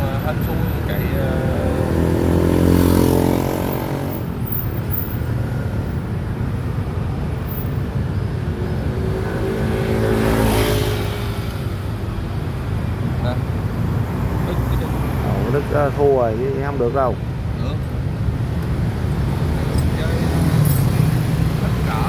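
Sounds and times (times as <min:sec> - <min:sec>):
road traffic: 0:00.0 - 0:22.0
motor vehicle passing by: 0:01.0 - 0:05.6, 0:08.3 - 0:12.1.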